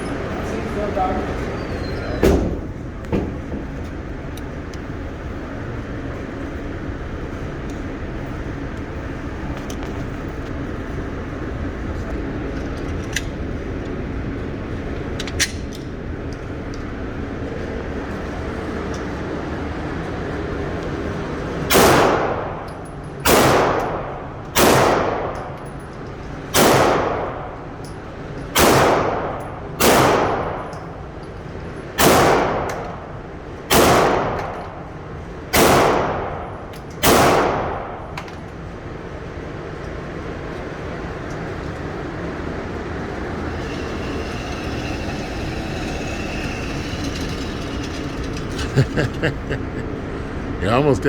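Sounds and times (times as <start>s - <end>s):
pistol shots with echo: 21.7s - 22.5s, 23.3s - 25.4s, 26.6s - 27.4s, 28.6s - 30.6s, 32.0s - 32.8s, 33.7s - 34.5s, 35.5s - 38.0s.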